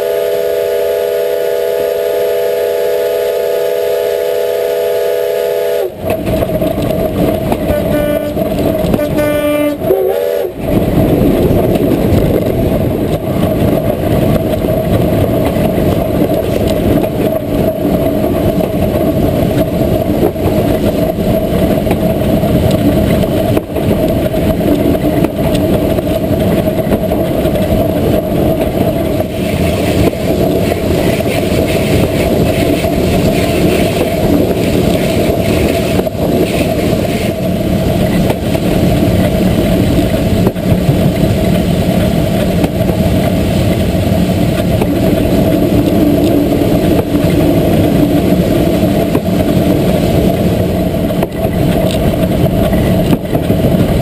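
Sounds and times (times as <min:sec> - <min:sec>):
train rumbling along track: 0:00.0 - 0:54.0.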